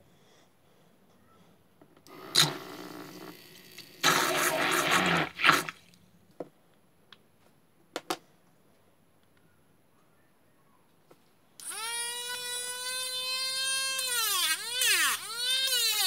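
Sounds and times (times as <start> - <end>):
motor drill churning water: 2.2 - 5.8.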